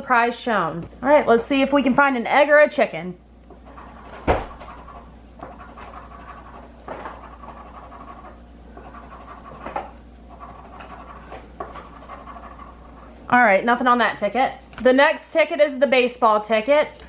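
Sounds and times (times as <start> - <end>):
scratch ticket scraping: 3.6 - 9.7, 10.3 - 13.2.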